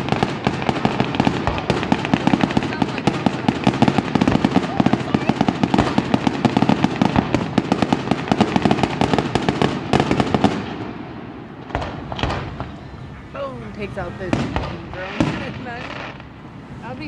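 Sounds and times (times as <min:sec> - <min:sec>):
fireworks crackling and banging: 0:00.0 - 0:17.0.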